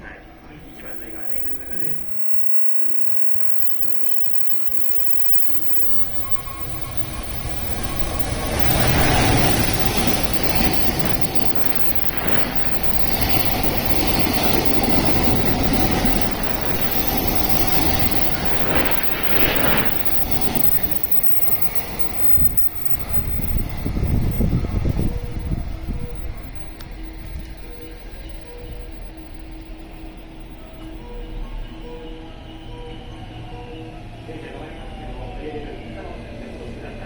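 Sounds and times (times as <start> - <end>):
train wheels rumbling on rails: 0.4 - 31.1
train knocks: 5.0 - 29.1.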